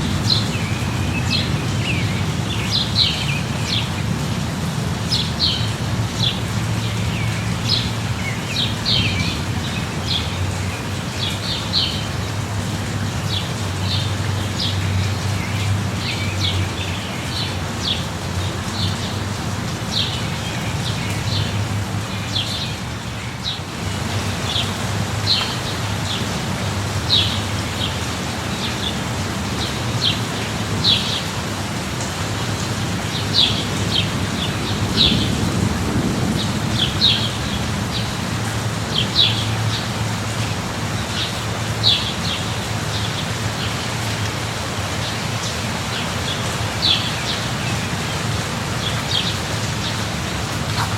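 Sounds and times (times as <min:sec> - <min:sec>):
steady rain: 0:00.0 - 0:50.9.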